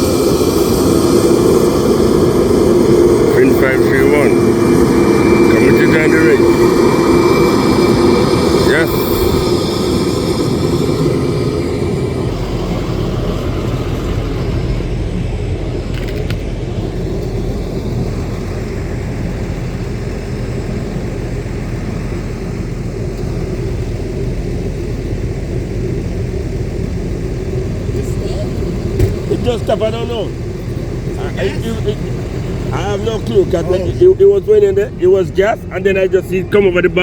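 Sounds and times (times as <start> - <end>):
deep hum: 0.0 - 37.0
low engine rumble: 0.0 - 37.0.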